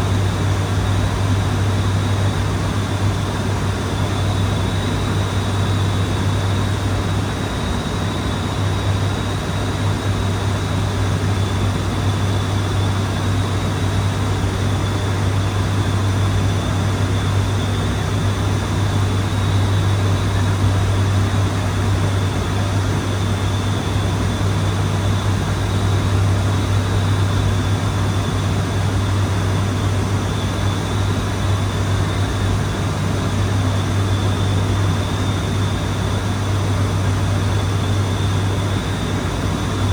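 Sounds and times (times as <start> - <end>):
faint high whine: 0.0 - 39.9
turboprop propeller hum: 0.0 - 39.9.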